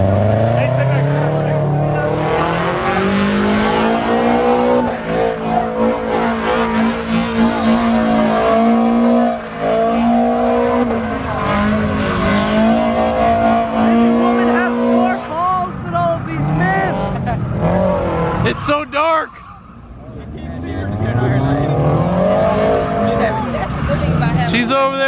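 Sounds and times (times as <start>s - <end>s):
car engine revving hard: 0.0s - 19.1s, 19.8s - 25.0s
tyres squealing on pavement: 17.8s - 20.1s.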